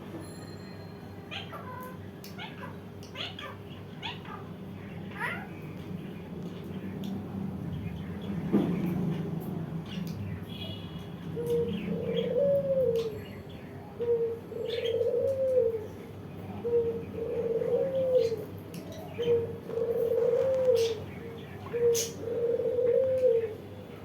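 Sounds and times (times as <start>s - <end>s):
dove cooing: 11.4s - 13.2s, 14.0s - 23.7s.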